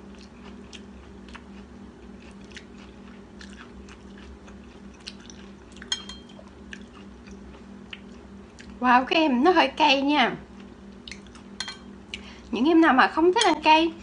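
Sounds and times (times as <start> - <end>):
steady low hum: 0.0 - 14.0
close chewing: 0.1 - 8.8.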